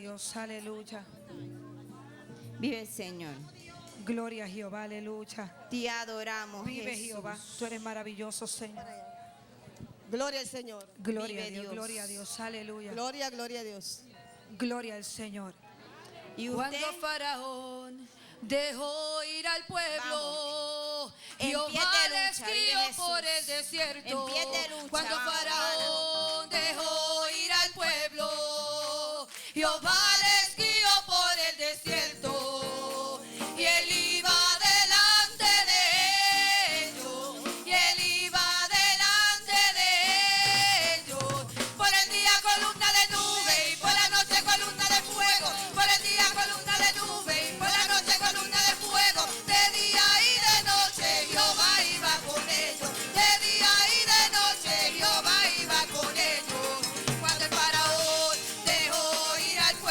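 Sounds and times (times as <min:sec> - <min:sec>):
congregation singing: 0:21.4 - 0:59.9
band with percussion: 0:27.8 - 0:59.9.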